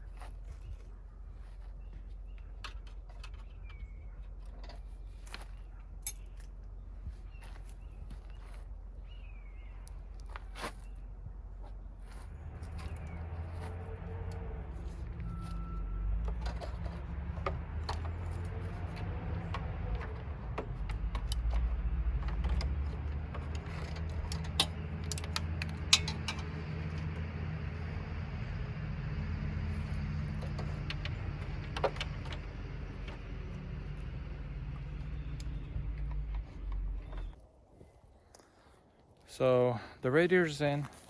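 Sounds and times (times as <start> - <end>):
low hum: 0.0 - 37.6
metallic clicks and clinks of tools: 6.0 - 6.6, 17.8 - 27.1.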